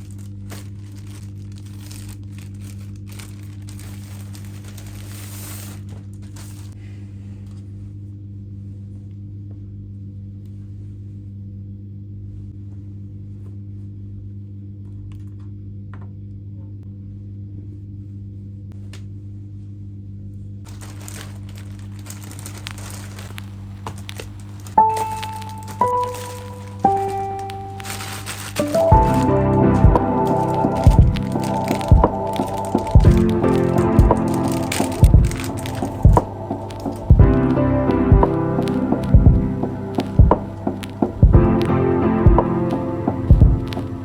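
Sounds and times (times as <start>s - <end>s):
crinkling and rustling: 0.0s - 6.8s, 20.5s - 44.0s
low electrical hum: 0.0s - 44.0s.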